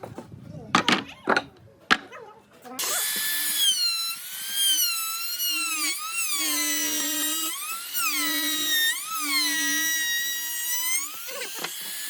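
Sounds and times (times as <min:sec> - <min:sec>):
electric power tool whining: 0:02.8 - 0:12.0.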